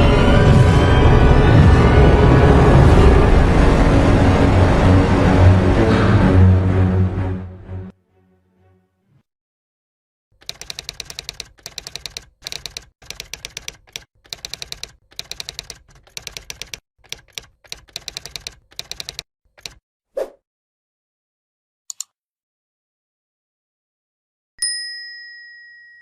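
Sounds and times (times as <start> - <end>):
typewriter key clicks: 10.4 - 19.8, 21.9 - 22.1.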